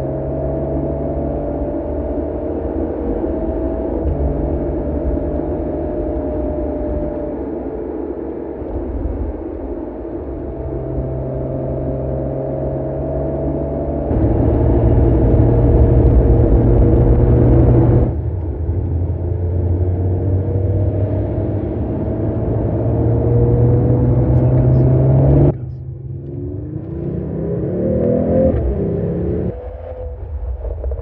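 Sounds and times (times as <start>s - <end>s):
turbo whine: 0.0s - 19.4s
car engine running: 0.0s - 29.5s.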